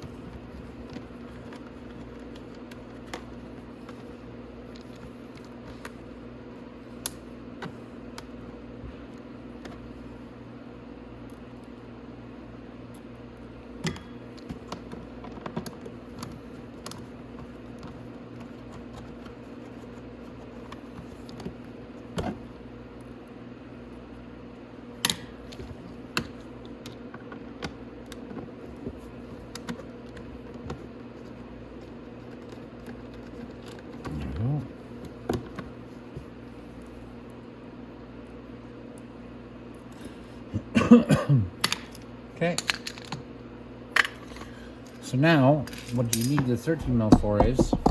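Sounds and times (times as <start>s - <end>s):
steady low hum: 0.0s - 47.9s
hand tools clicking and knocking: 46.1s - 47.9s.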